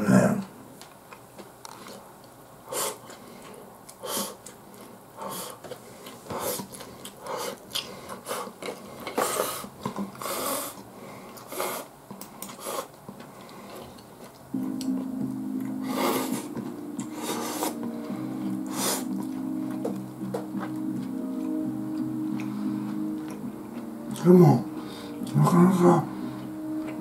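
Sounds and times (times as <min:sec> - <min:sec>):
chewing: 0:01.1 - 0:24.3
breathing: 0:05.2 - 0:11.8, 0:12.4 - 0:14.0, 0:24.8 - 0:25.2.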